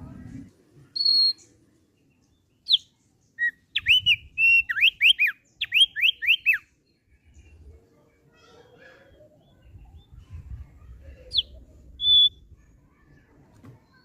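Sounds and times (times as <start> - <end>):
bird whistling song: 1.0 - 1.5, 2.6 - 6.8, 11.3 - 12.4.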